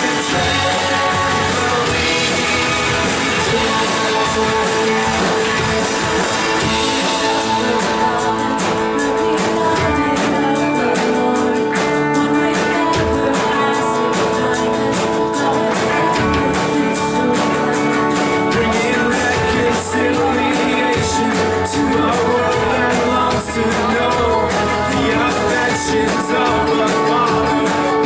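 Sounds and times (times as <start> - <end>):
drum hits: 0.0 - 12.0
strummed guitars: 0.0 - 28.0.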